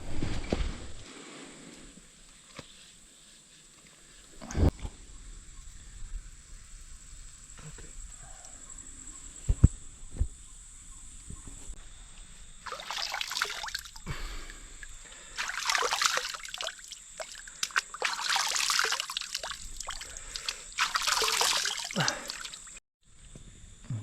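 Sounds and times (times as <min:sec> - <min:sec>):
water sloshing and trickling: 0:12.6 - 0:22.8.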